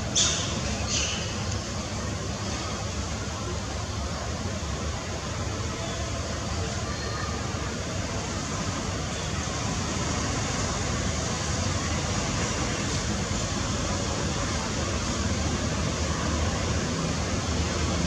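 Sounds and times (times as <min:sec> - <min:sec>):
steady rushing noise: 0:07.4 - 0:18.0.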